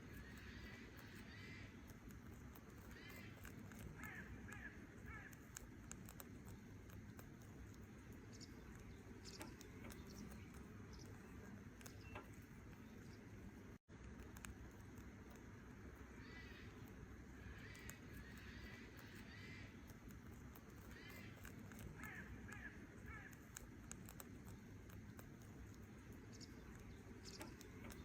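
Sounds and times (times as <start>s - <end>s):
faint bird chirps: 0.0s - 1.9s, 2.7s - 5.6s, 7.9s - 13.8s, 15.9s - 19.9s, 20.7s - 23.4s, 25.9s - 28.0s.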